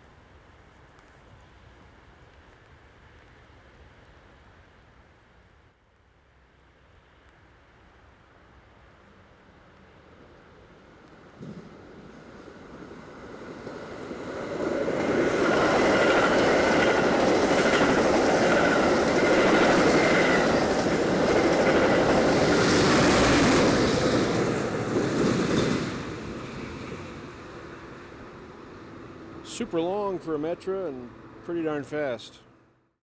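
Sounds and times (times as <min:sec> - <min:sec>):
train rumble and wheel clatter: 0:08.8 - 0:32.0.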